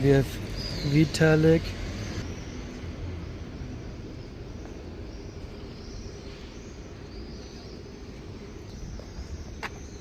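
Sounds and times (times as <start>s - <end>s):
high chirping calls: 0.0s - 10.0s
street noise rumble: 0.0s - 10.0s.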